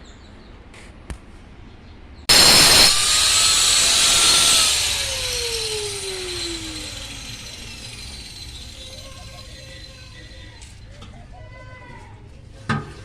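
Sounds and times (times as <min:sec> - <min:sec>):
electric power tool grinding: 0:02.3 - 0:10.9.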